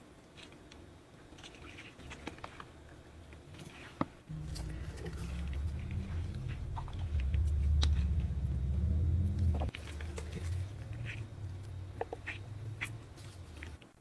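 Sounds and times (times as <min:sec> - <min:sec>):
steady low rumble: 0:04.3 - 0:13.8.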